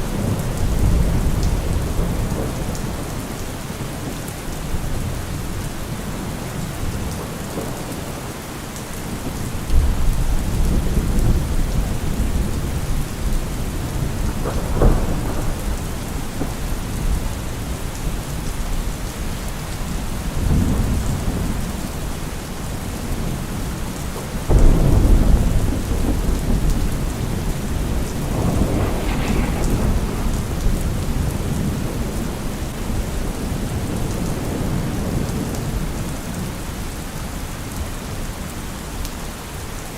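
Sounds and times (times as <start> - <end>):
thunder rumbling: 0.0 - 3.4, 9.1 - 22.1, 22.7 - 36.5
steady rain falling: 0.0 - 39.9.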